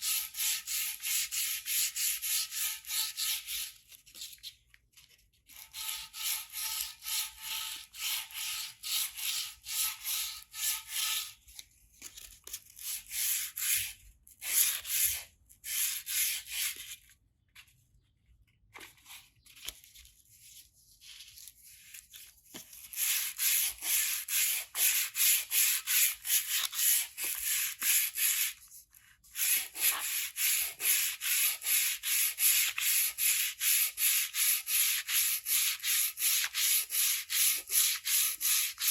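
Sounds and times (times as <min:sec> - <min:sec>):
sanding metal by hand: 0:23.0 - 0:28.6, 0:29.4 - 0:38.9.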